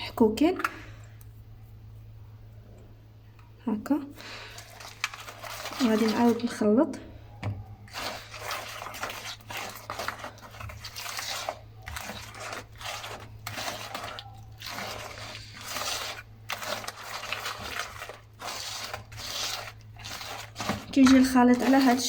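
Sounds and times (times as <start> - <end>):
batter mixing in a bowl: 3.7 - 22.0.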